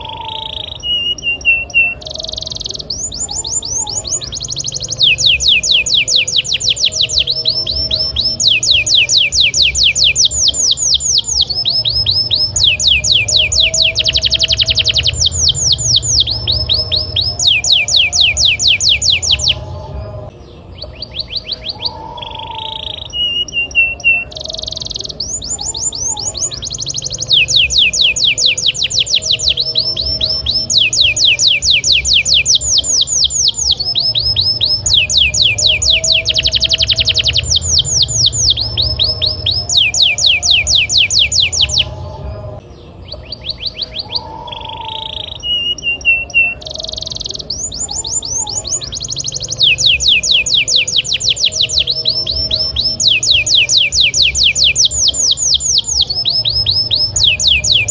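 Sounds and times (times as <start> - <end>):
canary singing trills: 0.0 - 57.9
steady low hum: 2.8 - 21.2, 25.1 - 43.4.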